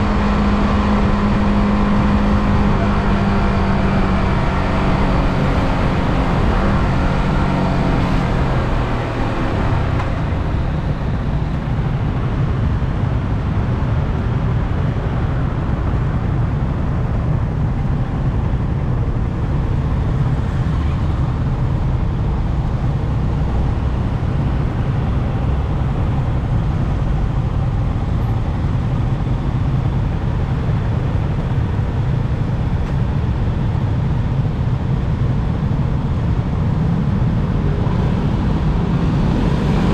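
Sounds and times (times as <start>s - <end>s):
motorcycle engine droning: 0.0s - 12.7s.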